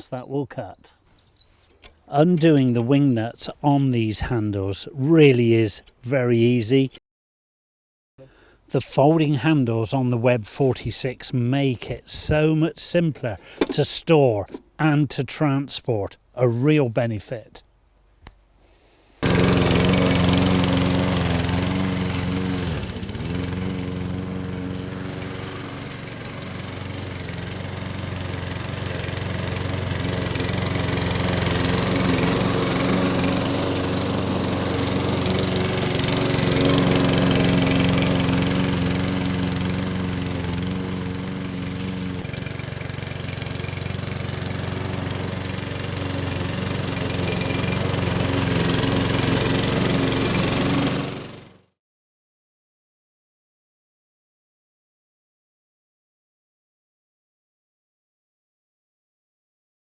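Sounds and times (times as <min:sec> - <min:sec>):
lawnmower engine running: 0:01.4 - 0:04.1, 0:13.2 - 0:14.8, 0:19.2 - 0:51.6.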